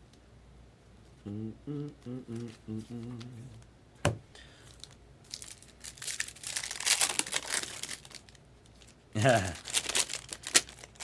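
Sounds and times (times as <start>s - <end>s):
wrapper tearing and crinkling: 4.8s - 11.0s.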